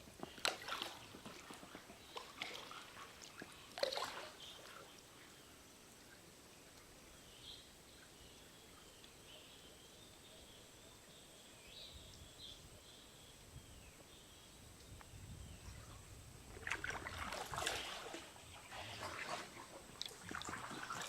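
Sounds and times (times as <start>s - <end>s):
splashing in water: 0.2s - 4.8s, 16.5s - 21.0s.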